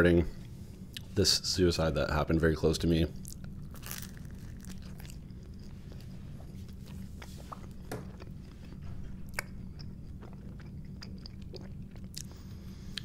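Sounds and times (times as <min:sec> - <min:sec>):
steady low hum: 0:00.0 - 0:13.0
person chewing pizza: 0:03.2 - 0:13.0.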